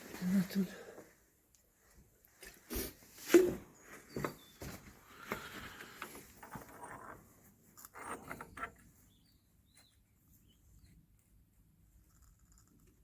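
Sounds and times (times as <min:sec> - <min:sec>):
metal parts knocking and scraping: 0:06.2 - 0:08.9.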